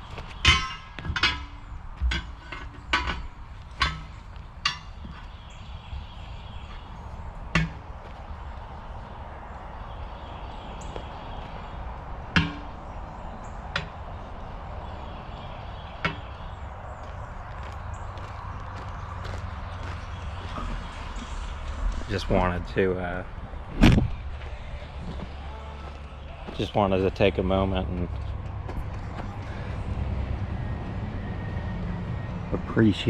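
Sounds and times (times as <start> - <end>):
sharp knocks: 12.3 - 12.8.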